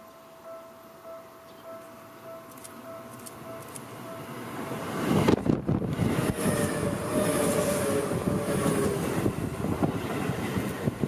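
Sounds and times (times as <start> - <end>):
train wheels rumbling on rails: 2.5 - 11.0.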